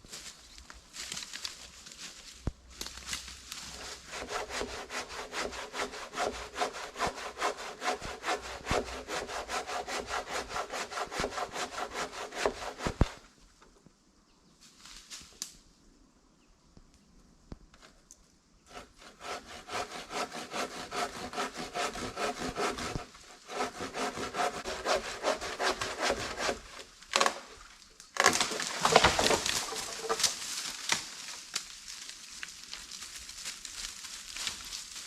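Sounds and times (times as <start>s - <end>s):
hand saw cutting wood: 3.6s - 13.2s, 18.7s - 27.5s, 28.2s - 30.4s.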